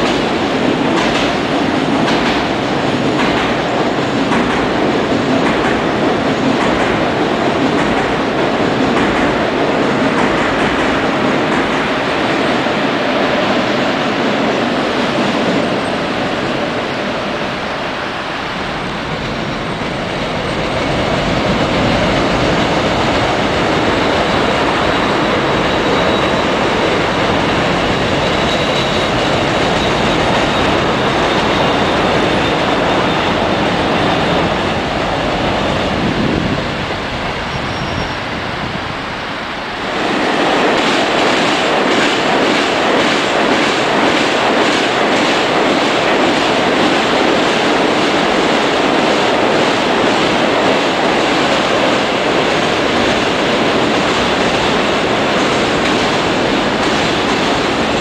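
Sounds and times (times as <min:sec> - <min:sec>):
steel wheels on track: 0:19.5 - 0:36.0.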